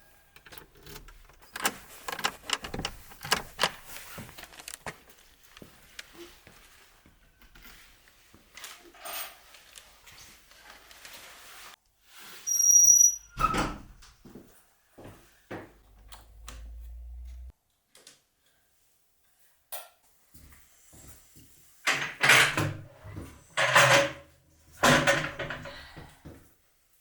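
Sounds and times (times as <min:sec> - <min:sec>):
knocks and clatter: 0:00.4 - 0:04.7
high squeak: 0:12.3 - 0:13.7.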